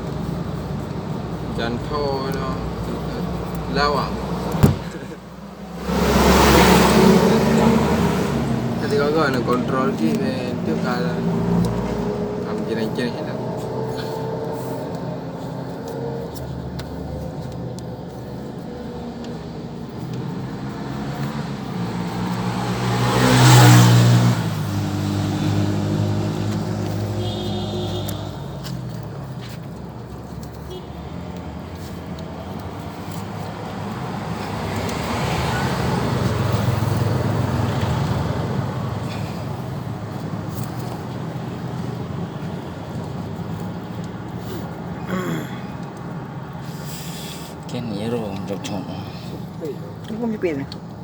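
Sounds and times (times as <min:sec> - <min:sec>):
vehicle engines running: 0:00.0 - 0:51.0
vehicle passing close by: 0:00.0 - 0:51.0.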